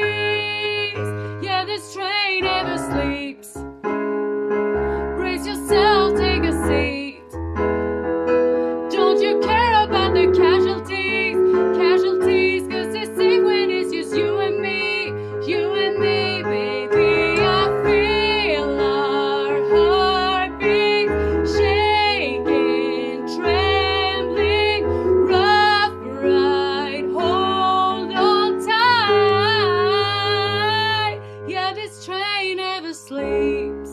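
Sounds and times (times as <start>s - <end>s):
piano chords: 0.0s - 33.9s
person singing with vibrato: 8.8s - 33.9s.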